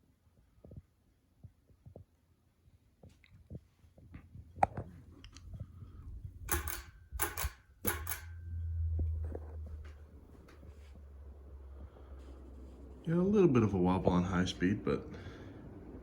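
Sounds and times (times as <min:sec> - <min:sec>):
ceiling fan humming: 0:04.3 - 0:16.0
sharp click: 0:06.4 - 0:08.4
short rattling noises: 0:06.4 - 0:08.4.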